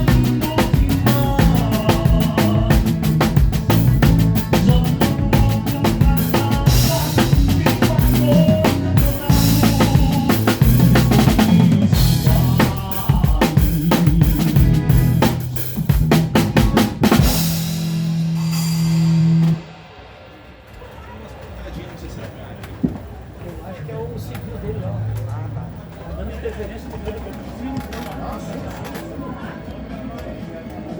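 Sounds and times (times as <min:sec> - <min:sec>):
bass line: 0:00.0 - 0:19.8
drum kit played hard: 0:00.0 - 0:20.8.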